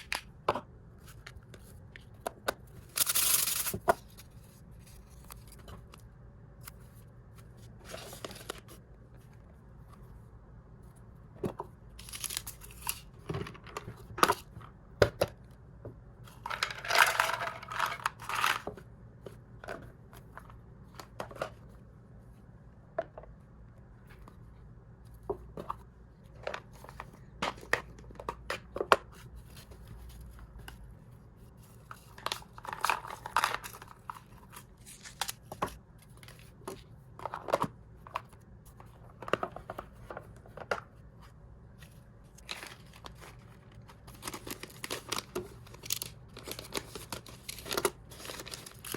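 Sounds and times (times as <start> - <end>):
plastic packaging crinkling: 42.4 - 48.9.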